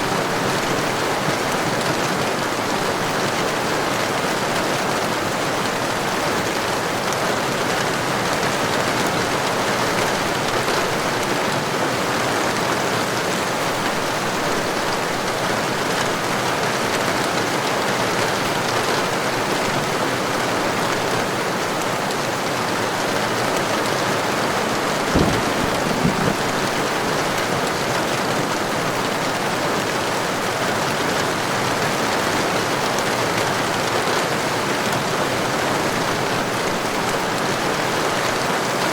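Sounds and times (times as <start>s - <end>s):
heavy rain falling: 0.0s - 38.9s
small knocks: 25.1s - 26.6s.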